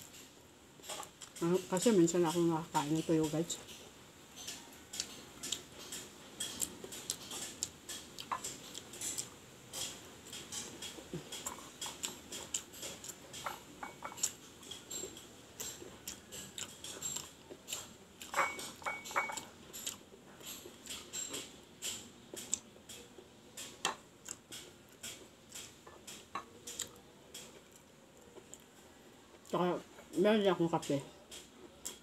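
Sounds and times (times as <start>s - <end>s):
chewing and mouth clicks: 4.4s - 28.7s
utensil clinking on a plate: 12.8s - 19.8s.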